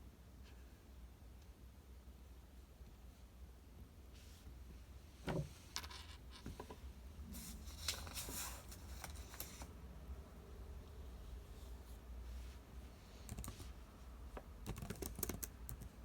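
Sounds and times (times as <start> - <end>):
rustling or scraping: 7.3 - 9.7.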